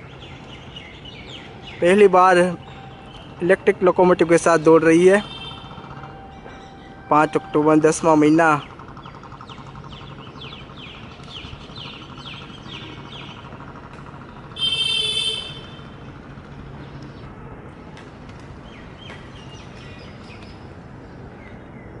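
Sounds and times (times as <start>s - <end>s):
distant train rumble: 0.0s - 21.3s
birds chirping: 0.0s - 22.0s.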